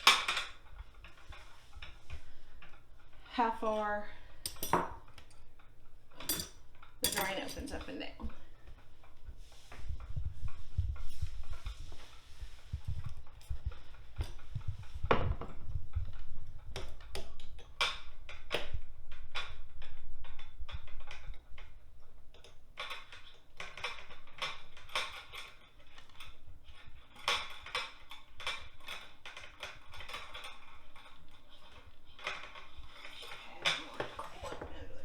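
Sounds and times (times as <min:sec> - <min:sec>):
small parts clicking and clinking: 0:04.4 - 0:08.0, 0:16.6 - 0:34.7.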